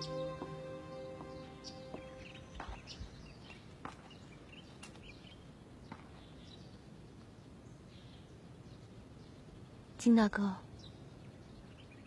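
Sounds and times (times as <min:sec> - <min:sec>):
low hiss: 0:00.0 - 0:03.8
bird chirps: 0:00.0 - 0:05.5.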